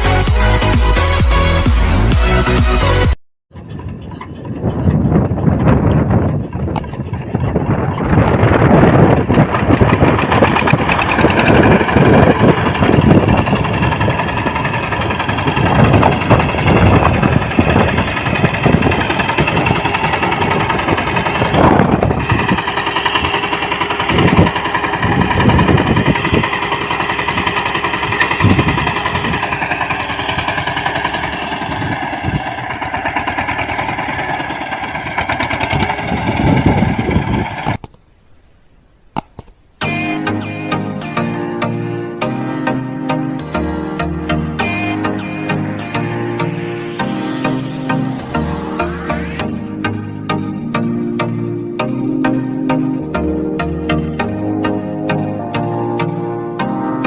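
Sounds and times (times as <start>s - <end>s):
engine knocks and clatter: 0.0s - 37.8s
small tractor engine running: 0.0s - 37.9s, 39.4s - 57.0s.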